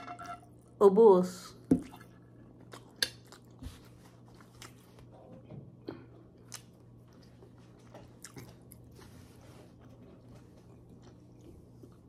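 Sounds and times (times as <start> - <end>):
low steady hum: 0.0 - 12.0
person chewing with mouth clicks: 2.6 - 9.0.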